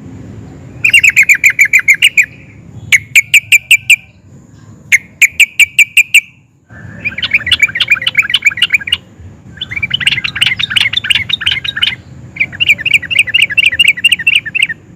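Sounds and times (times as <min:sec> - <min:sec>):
bird singing repeated notes: 0:00.4 - 0:14.9
bird warbling: 0:00.8 - 0:04.2, 0:04.9 - 0:14.9.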